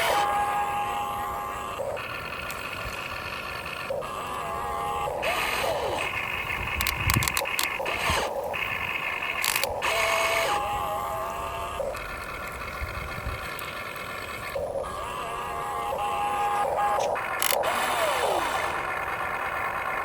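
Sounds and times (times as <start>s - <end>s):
toy excavator motors whining: 0.0s - 20.0s.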